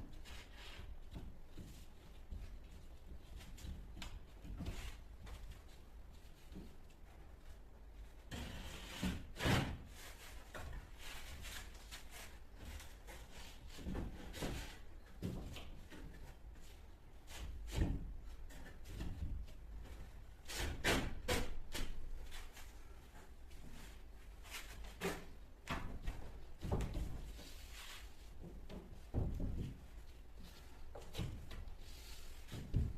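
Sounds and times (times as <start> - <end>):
boards and tools knocking and scraping: 17.3 - 23.9, 24.5 - 32.9.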